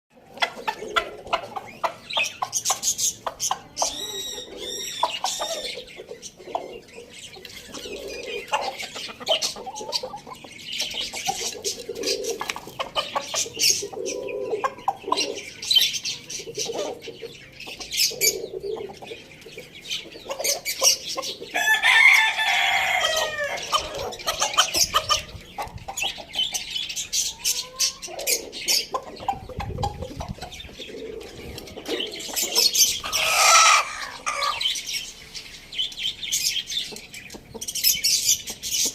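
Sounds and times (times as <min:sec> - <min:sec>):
chickens clucking: 0:00.1 - 0:38.9
chicken loud call: 0:21.6 - 0:24.1, 0:33.0 - 0:34.6.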